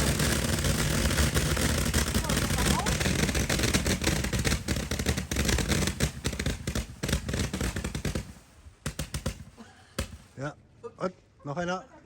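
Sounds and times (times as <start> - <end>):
firework barrel firing rapid shots: 0.0 - 10.4.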